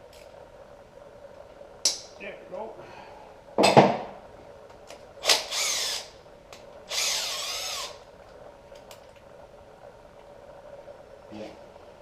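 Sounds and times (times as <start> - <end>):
cordless drill whirring: 5.2 - 6.1, 6.9 - 8.0.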